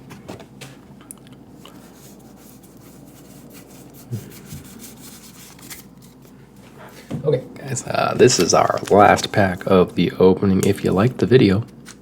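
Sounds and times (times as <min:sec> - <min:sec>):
cards sliding and rubbing: 0:01.8 - 0:06.4, 0:08.2 - 0:09.7.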